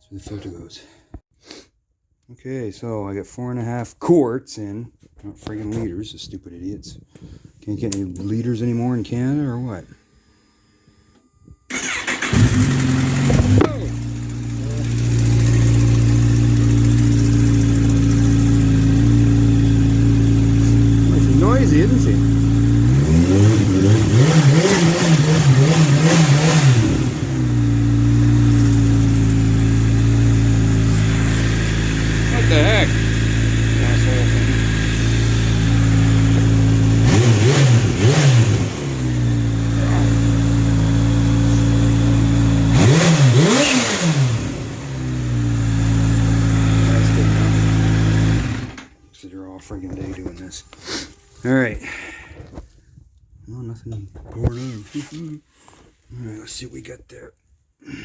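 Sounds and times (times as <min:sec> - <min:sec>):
motorcycle engine idling: 0:11.7 - 0:23.0, 0:27.2 - 0:37.1.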